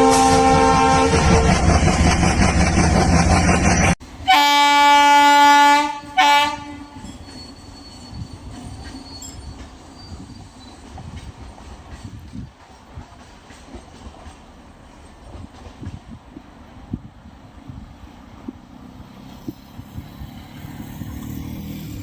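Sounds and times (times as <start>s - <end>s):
locomotive horn blasts: 0.0s - 1.7s, 4.2s - 7.1s
loud rushing train: 0.0s - 22.0s
rumble of moving train: 0.0s - 22.0s.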